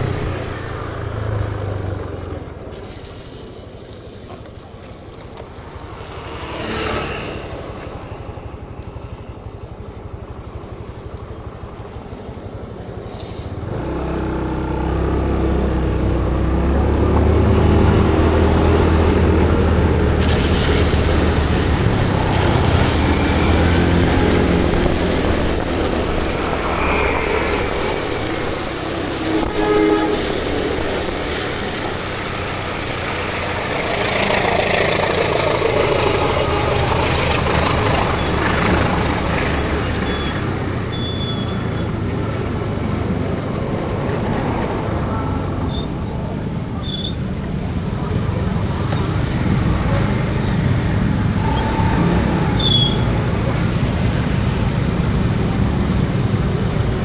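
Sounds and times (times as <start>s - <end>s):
road traffic: 0.0s - 57.0s
short horn toot: 24.2s - 31.5s.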